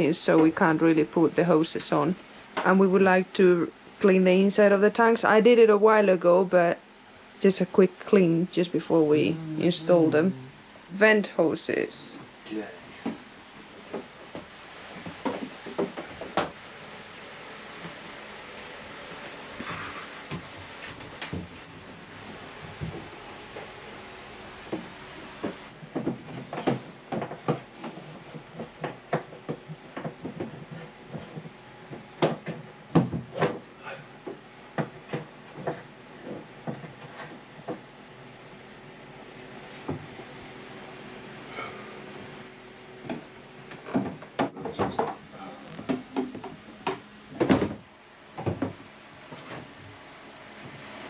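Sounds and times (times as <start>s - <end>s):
hoses knocking and rubbing: 13.0s - 17.0s, 24.7s - 38.0s, 42.4s - 47.8s.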